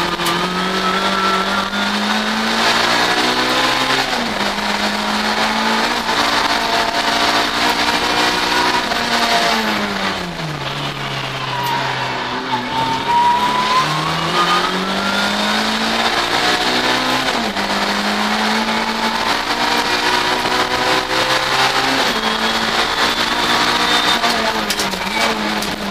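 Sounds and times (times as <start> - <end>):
race car engine at high revs: 0.0 - 25.9.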